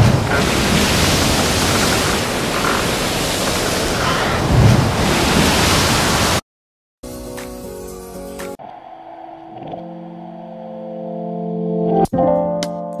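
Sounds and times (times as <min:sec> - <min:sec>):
sea water rushing: 0:00.0 - 0:06.4
wind: 0:00.0 - 0:06.4.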